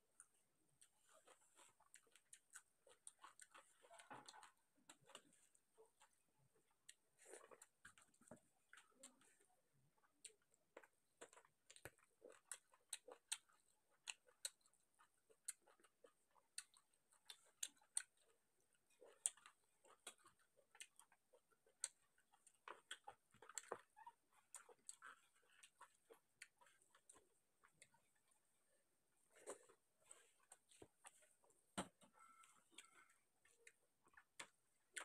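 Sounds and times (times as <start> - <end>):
chewing mouth sounds: 0.2 - 9.4, 10.0 - 28.4.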